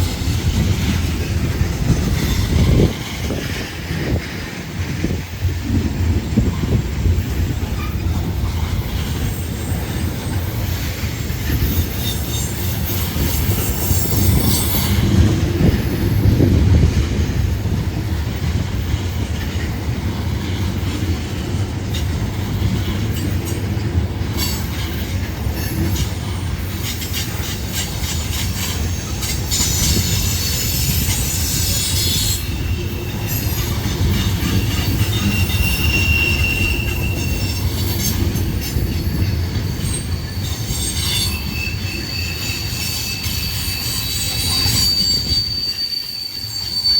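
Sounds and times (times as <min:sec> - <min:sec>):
train wheels rumbling on rail: 0:00.0 - 0:46.9
high-pitched wheel squeal: 0:11.5 - 0:15.2, 0:27.1 - 0:46.9.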